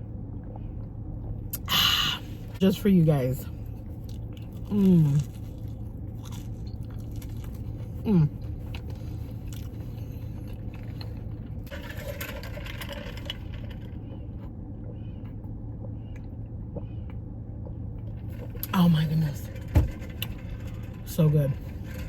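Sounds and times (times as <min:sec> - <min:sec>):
low hum inside car: 0:00.0 - 0:22.0
person murmuring while eating: 0:04.7 - 0:05.3, 0:08.0 - 0:08.4.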